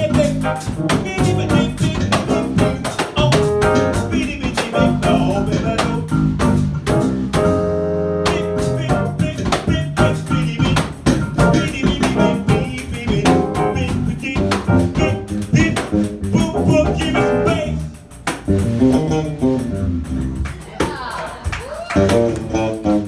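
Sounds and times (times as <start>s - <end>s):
bass: 0.0s - 23.0s
drum strikes: 0.0s - 23.0s
piano: 0.0s - 23.0s
pandeiro: 8.2s - 23.0s.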